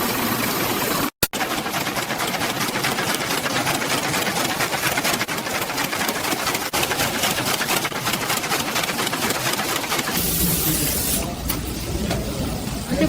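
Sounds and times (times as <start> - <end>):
sewing machine stitching rattle: 0.8 - 13.0.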